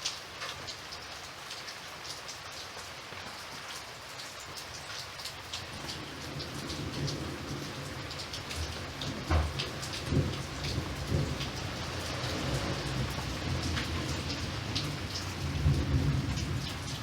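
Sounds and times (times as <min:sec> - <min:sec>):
sharp rain drop ticks: 0:00.0 - 0:17.0
steady rain falling: 0:00.0 - 0:17.0
low rumble of thunder: 0:05.7 - 0:17.0.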